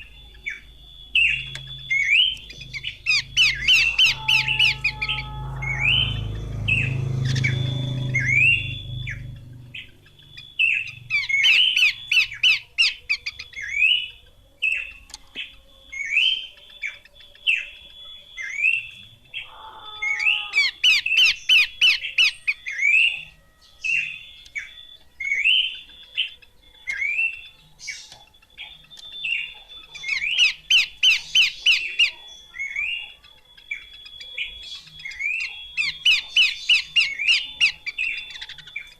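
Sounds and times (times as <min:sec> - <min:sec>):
bird whistled notes: 0:00.0 - 0:38.9
low rumble: 0:02.6 - 0:10.1.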